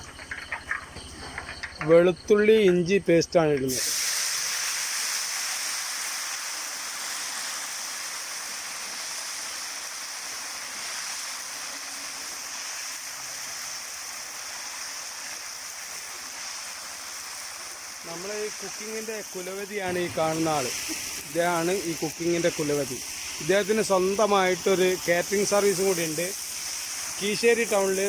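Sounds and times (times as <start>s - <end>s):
paste sizzling in hot oil: 0.0s - 28.0s.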